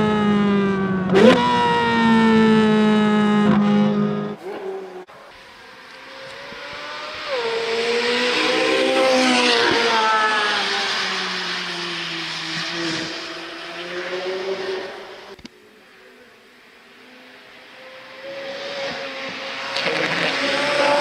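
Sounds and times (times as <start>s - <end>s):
sports car accelerating past: 3.5s - 15.4s, 17.0s - 21.0s.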